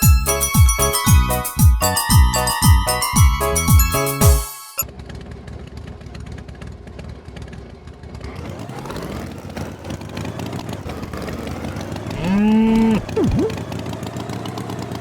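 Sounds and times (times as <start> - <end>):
tractor engine revving: 8.2 - 15.0.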